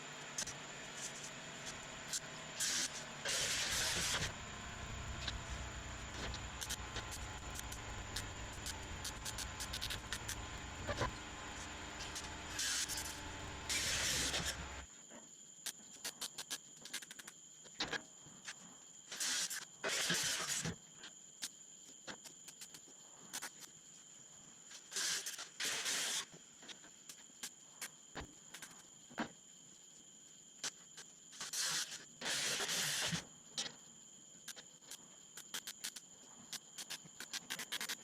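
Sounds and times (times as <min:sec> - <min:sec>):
faint high whine: 0:00.0 - 0:15.9
welding arc crackling hiss: 0:02.1 - 0:14.8, 0:24.9 - 0:26.3, 0:31.4 - 0:33.2
sharp clicks: 0:06.6 - 0:10.4.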